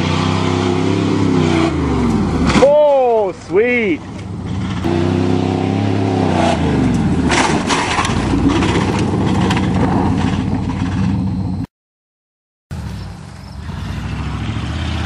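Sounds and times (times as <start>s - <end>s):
pickup engine revving: 0.0s - 2.8s, 3.8s - 11.6s, 12.7s - 15.0s
truck knocks and clatter: 6.8s - 11.3s.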